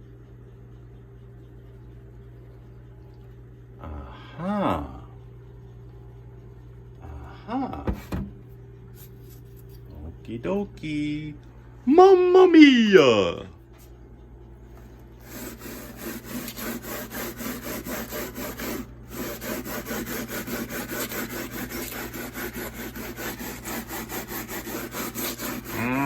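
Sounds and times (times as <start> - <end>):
steel scouring pad scrubbing metal: 15.2 - 26.0.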